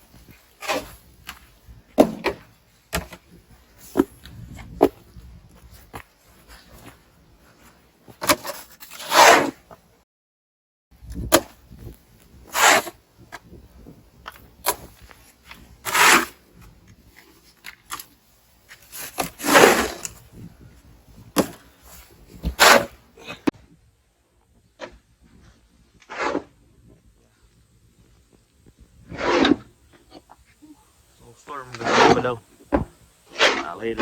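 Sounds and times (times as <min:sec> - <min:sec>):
snow crunching and scraping: 0:00.0 - 0:09.7, 0:13.8 - 0:23.5, 0:24.8 - 0:27.4, 0:28.0 - 0:29.7, 0:31.2 - 0:32.5, 0:33.3 - 0:34.0.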